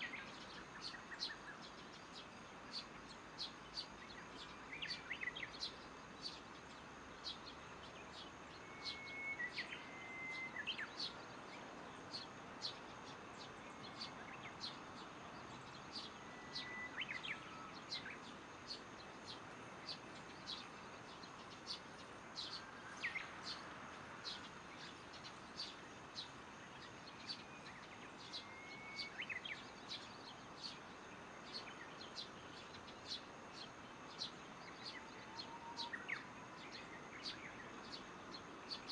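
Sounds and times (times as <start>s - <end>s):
bird high chirp: 0.0s - 23.6s, 24.2s - 38.9s
insects humming: 0.0s - 38.9s
birds whistling: 8.5s - 11.2s, 15.6s - 18.2s, 24.2s - 30.8s.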